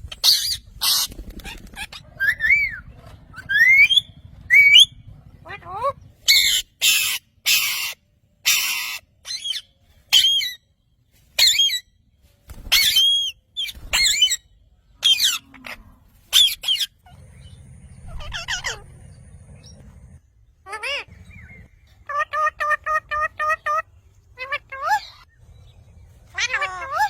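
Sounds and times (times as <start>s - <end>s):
low hum: 0.0s - 7.4s, 13.8s - 22.1s
parrot squawking and screeching: 0.1s - 10.6s, 11.4s - 11.9s, 12.7s - 14.4s, 15.0s - 17.2s, 18.0s - 19.1s, 20.6s - 25.3s, 26.3s - 27.0s.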